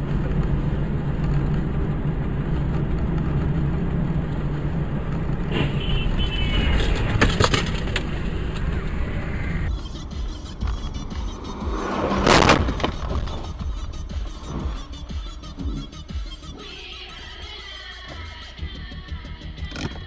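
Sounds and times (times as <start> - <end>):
car engine and road noise: 0.0 - 20.0
high squealing: 5.4 - 16.8.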